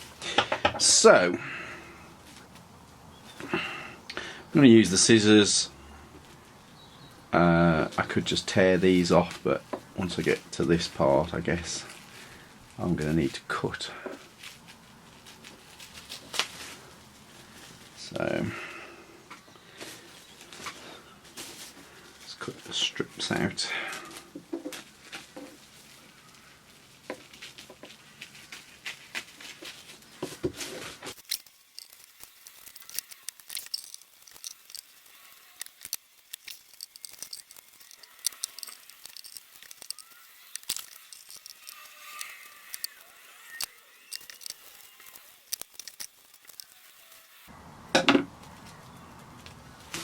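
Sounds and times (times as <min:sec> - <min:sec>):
plastic film crinkling: 0:07.8 - 0:47.6, 0:48.3 - 0:50.0
scissors snipping: 0:31.1 - 0:46.9.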